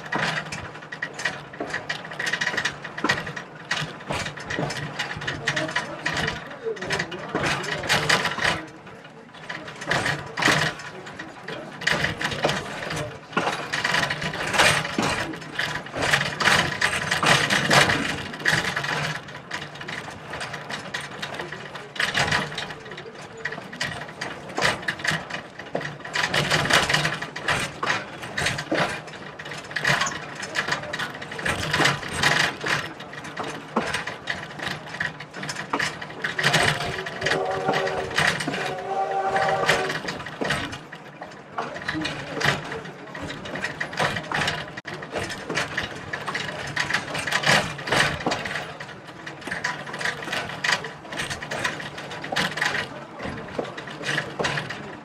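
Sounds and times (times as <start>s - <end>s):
train rattling and clanking: 0.0s - 55.0s
train whistle chord: 37.2s - 40.0s.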